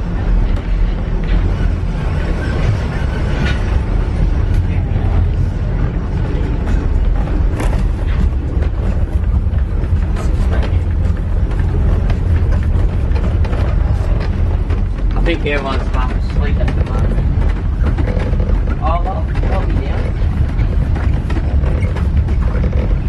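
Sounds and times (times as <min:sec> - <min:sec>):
train rumbling on rails: 0:00.0 - 0:23.0
carriage knocks and rattles: 0:07.6 - 0:23.0.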